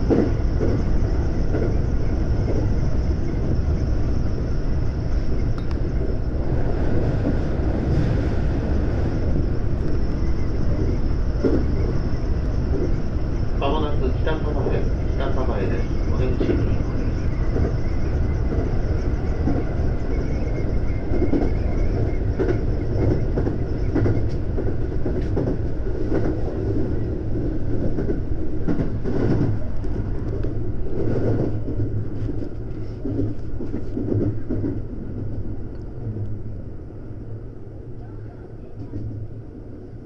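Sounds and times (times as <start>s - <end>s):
electric train rumbling: 0.0s - 40.0s
faint steady whine: 7.8s - 24.4s.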